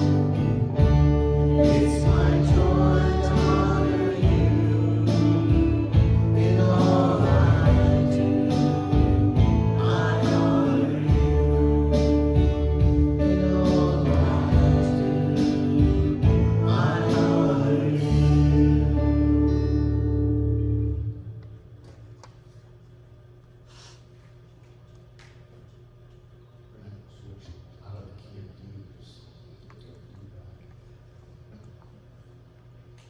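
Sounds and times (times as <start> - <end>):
worship band playing slow song: 0.0 - 21.1
steady bass: 0.0 - 21.5
guitar: 0.0 - 22.1
person singing: 1.5 - 19.5.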